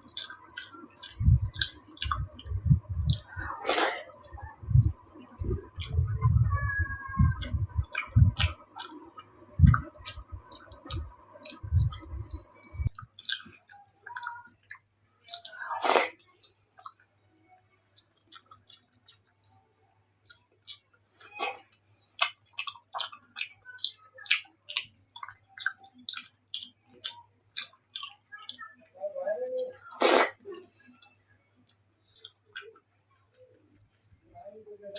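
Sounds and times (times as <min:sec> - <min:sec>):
steady hum: 0:00.0 - 0:13.0
chewing soft food: 0:00.0 - 0:17.1, 0:17.9 - 0:19.6, 0:20.2 - 0:28.8, 0:29.5 - 0:32.9
low thuds: 0:01.2 - 0:03.6, 0:04.3 - 0:08.7, 0:09.6 - 0:13.0.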